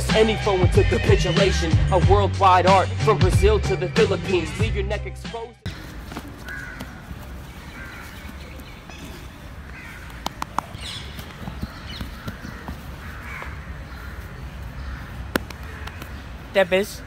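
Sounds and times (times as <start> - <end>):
outdoor background noise: 5.6 - 17.0
birds calling: 5.7 - 17.0.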